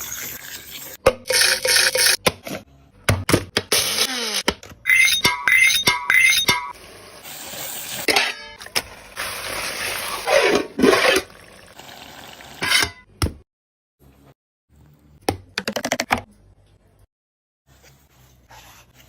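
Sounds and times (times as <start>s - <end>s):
food sizzling: 6.7s - 8.1s, 8.9s - 10.3s.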